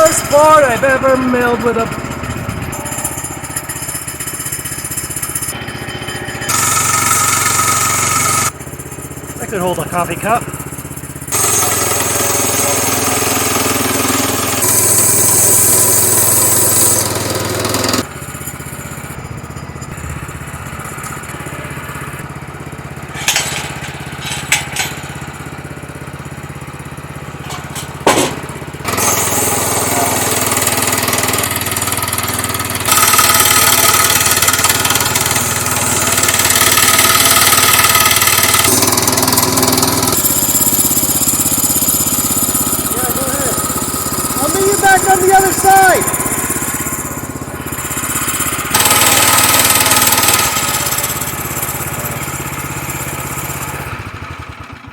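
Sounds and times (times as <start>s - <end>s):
band saw cutting log: 0.0s - 19.2s, 19.8s - 54.3s
small gas engine running: 0.0s - 54.9s
sharp knocks: 27.4s - 28.6s.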